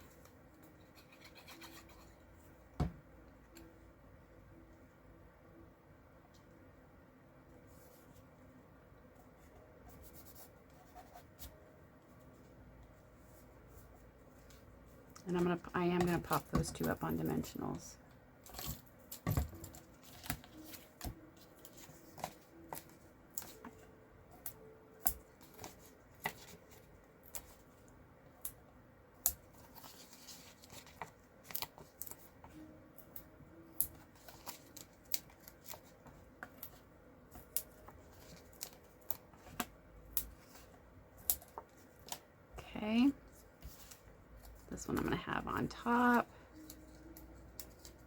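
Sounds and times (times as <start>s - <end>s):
paper rustling: 29.5s - 32.3s.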